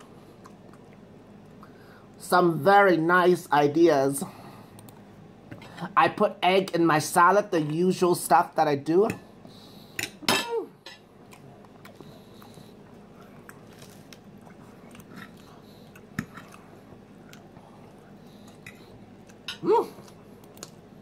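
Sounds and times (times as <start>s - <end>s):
person chewing salad: 0.0s - 1.7s, 11.2s - 21.0s.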